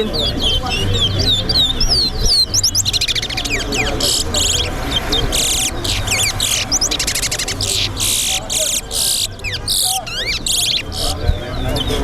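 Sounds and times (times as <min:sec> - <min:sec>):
finch singing whistled chirps: 0:00.1 - 0:11.2.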